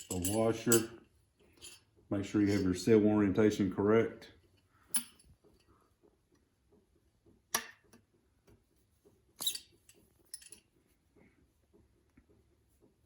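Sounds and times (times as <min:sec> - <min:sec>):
metal parts clicking and clinking: 0:00.0 - 0:01.8, 0:02.4 - 0:02.8, 0:04.9 - 0:05.7, 0:09.4 - 0:10.7.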